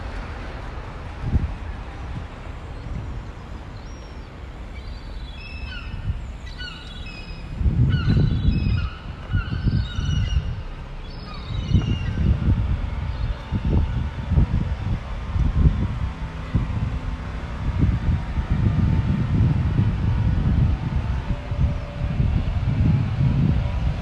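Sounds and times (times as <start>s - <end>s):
low rumbling gusts: 0.0s - 24.0s
birds calling: 2.7s - 12.4s.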